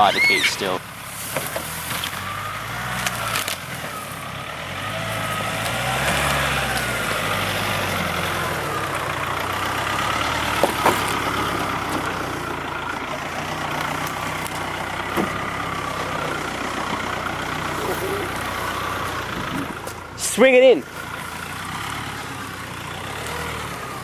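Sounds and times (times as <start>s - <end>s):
vehicle engine revving: 0.0s - 24.0s
vehicle body rattling: 5.2s - 22.8s.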